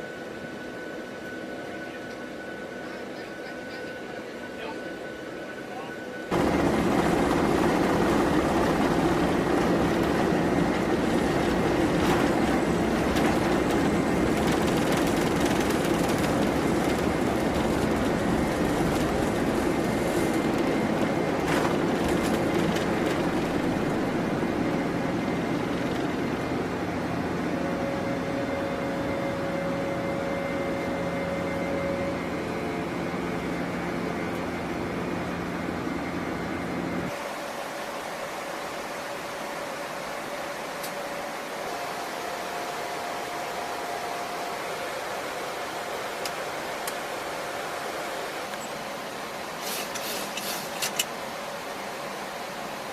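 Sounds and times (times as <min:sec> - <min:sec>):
aircraft engine rumble: 0:00.2 - 0:37.2
faint humming tone: 0:23.3 - 0:37.1.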